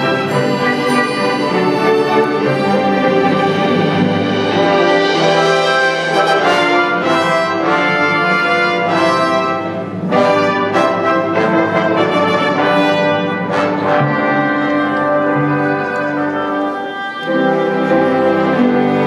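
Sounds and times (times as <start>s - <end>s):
orchestra with brass chords: 0.0s - 19.0s.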